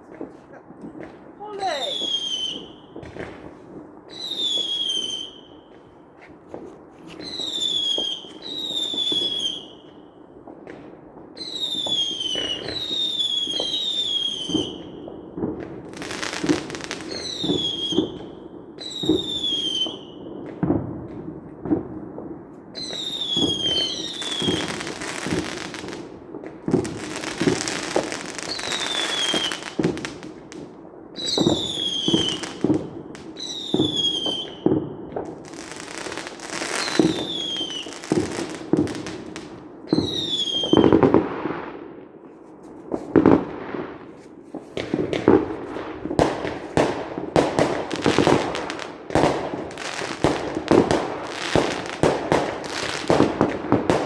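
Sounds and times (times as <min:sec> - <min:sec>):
firework bangs: 0:00.0 - 0:54.0
firework crackling: 0:00.0 - 0:54.0
firework whistles: 0:01.6 - 0:03.1, 0:04.1 - 0:05.8, 0:07.2 - 0:10.0, 0:11.4 - 0:15.0, 0:16.4 - 0:20.2, 0:22.8 - 0:25.8, 0:27.2 - 0:29.8, 0:31.2 - 0:34.8, 0:35.5 - 0:38.4, 0:39.9 - 0:41.0.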